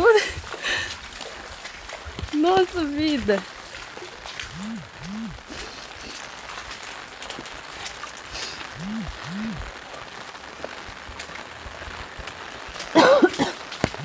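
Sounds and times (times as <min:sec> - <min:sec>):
rain falling on a flooded street: 0:00.0 - 0:14.0
low rising and falling calls: 0:04.5 - 0:05.4, 0:08.8 - 0:09.6.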